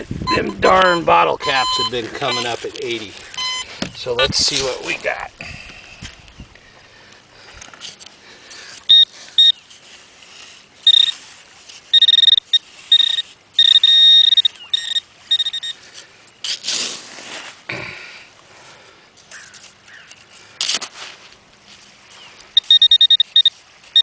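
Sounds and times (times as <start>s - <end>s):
metal detector pinpointer beeping: 0.0s - 4.3s, 8.9s - 9.6s, 10.8s - 11.2s, 11.9s - 15.8s, 22.6s - 24.0s
rustling scrape: 9.6s - 13.4s, 15.9s - 17.7s, 19.3s - 22.4s.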